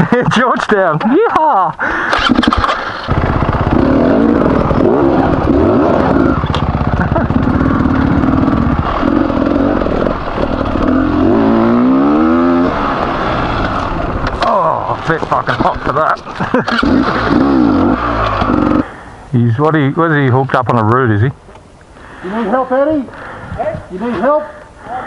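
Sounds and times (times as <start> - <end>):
motorcycle engine revving: 2.2 - 18.9.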